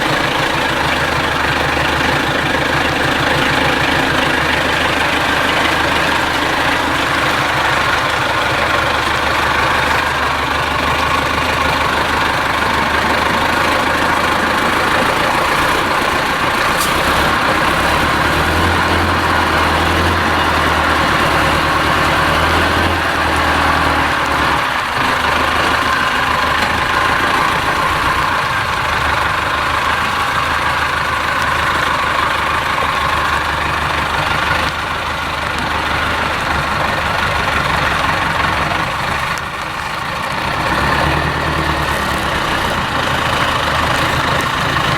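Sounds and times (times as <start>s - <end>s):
truck diesel engine running: 0.0s - 44.9s.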